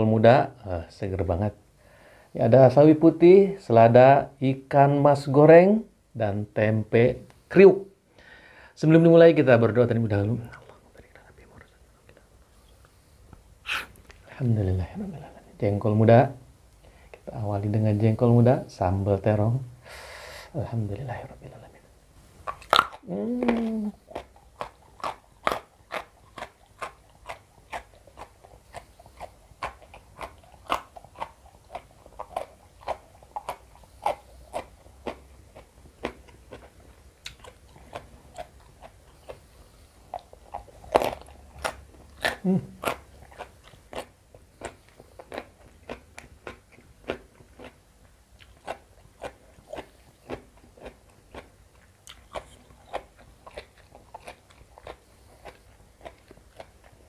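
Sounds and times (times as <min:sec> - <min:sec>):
crunching and chewing beans: 0:22.4 - 0:57.0.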